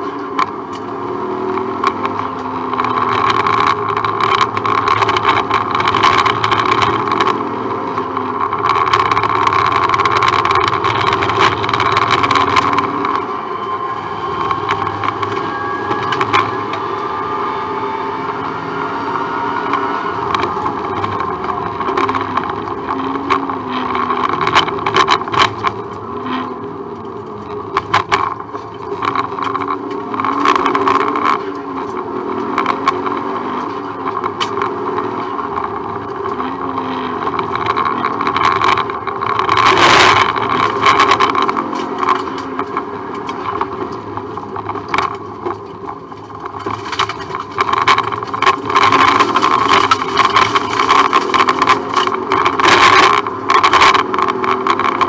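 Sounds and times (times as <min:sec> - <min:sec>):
rally car engine revving: 0:00.0 - 0:55.0
knocks and rattles: 0:19.7 - 0:55.0.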